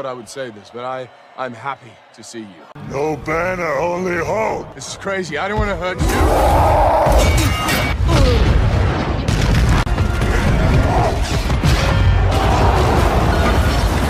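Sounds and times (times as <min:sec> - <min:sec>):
loud film score: 0:02.8 - 0:14.0.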